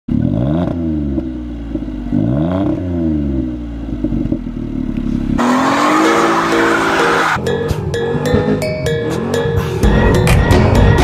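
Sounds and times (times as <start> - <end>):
car engine revving from idle: 0.1 - 6.9
music: 5.9 - 11.0.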